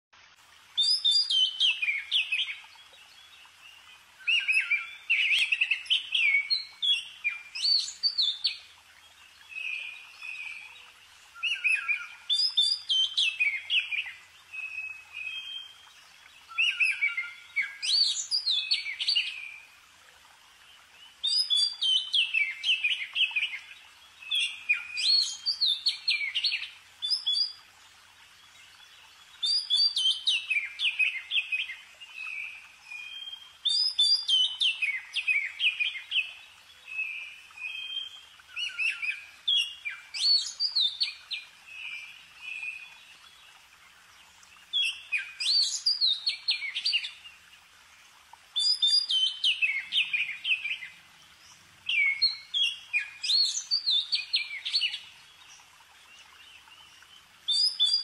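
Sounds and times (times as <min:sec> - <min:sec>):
songbird chirping and warbling: 0:00.8 - 0:19.8, 0:20.6 - 0:58.0.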